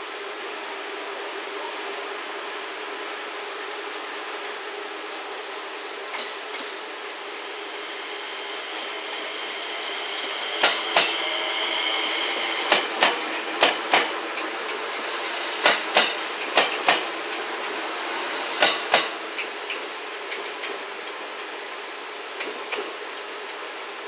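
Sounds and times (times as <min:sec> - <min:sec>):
train running hum: 0:00.0 - 0:24.0
train wheels clacking over track: 0:05.7 - 0:23.7.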